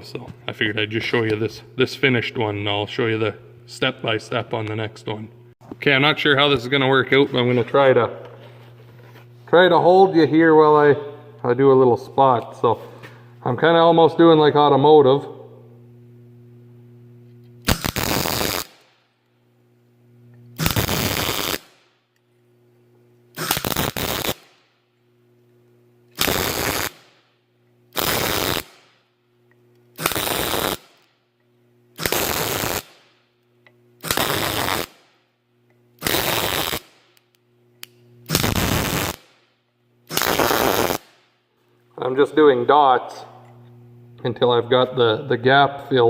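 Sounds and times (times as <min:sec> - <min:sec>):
steady low hum: 0:00.0 - 0:46.0
welder crackling bursts: 0:17.6 - 0:19.1, 0:20.6 - 0:22.0, 0:23.3 - 0:24.7, 0:26.1 - 0:27.3, 0:27.9 - 0:29.0, 0:29.9 - 0:31.2, 0:32.0 - 0:33.2, 0:34.0 - 0:35.2, 0:36.0 - 0:41.4.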